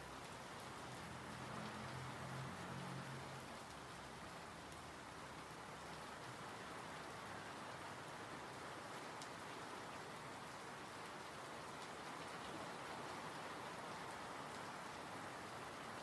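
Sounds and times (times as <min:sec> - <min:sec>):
rain falling: 0:00.0 - 0:16.0
raindrop ticks: 0:00.2 - 0:06.4.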